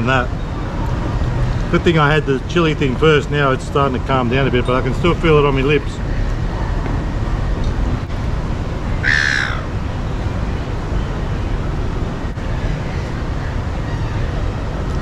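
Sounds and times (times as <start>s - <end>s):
harsh bird call: 9.0s - 9.8s.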